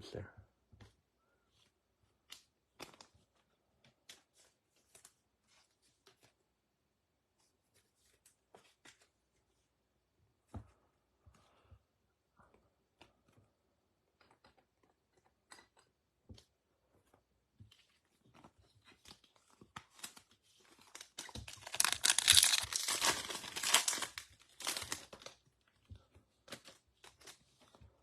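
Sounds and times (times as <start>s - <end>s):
foil wrapper tearing and crinkling: 20.8s - 25.4s.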